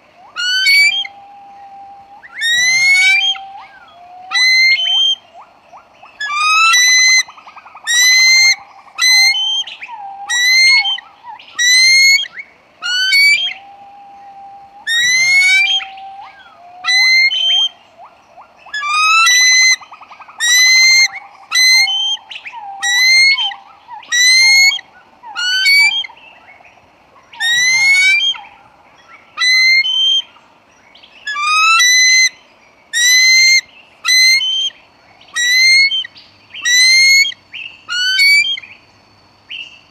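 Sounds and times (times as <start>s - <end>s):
bird whistled calls: 0.2s - 26.5s, 27.3s - 30.4s, 33.0s - 38.7s.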